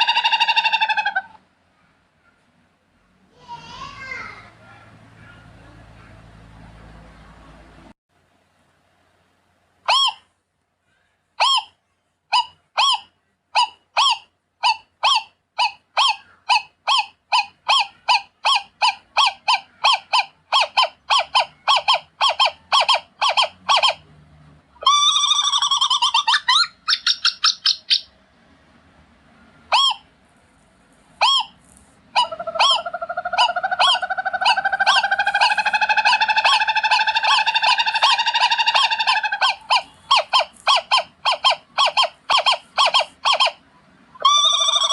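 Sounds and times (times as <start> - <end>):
owl calling: 0.0 - 1.9, 9.9 - 10.3, 11.4 - 24.0, 24.8 - 28.1, 29.7 - 30.1, 31.2 - 44.9.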